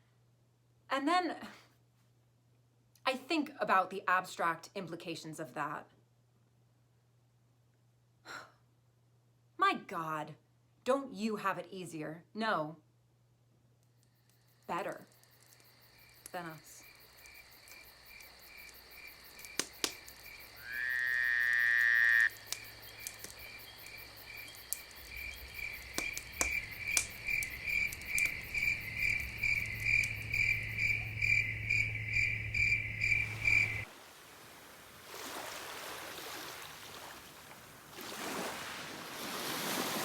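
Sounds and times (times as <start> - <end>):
insects chirping: 13.9 - 40.0
loud rising insect call: 14.2 - 33.9.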